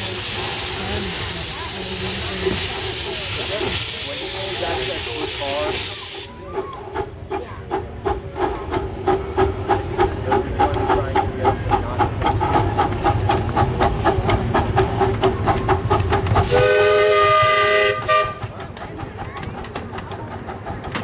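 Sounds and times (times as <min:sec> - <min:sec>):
steam locomotive chuffing: 0:00.0 - 0:21.0
steam whistle: 0:16.5 - 0:18.4.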